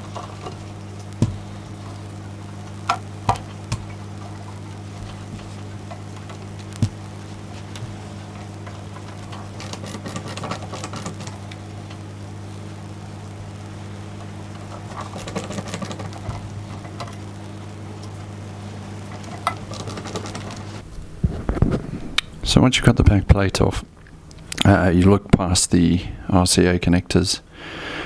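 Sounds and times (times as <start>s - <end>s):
low electrical hum: 0.0s - 28.0s
screwdriver scratching and clicking: 19.4s - 20.7s.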